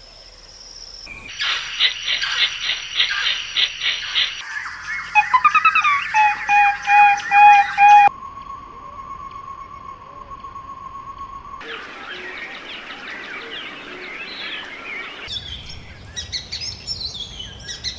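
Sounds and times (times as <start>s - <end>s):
faint hiss: 0.0s - 4.3s
small birds chirping: 0.0s - 17.9s
steady high tone: 5.2s - 11.6s.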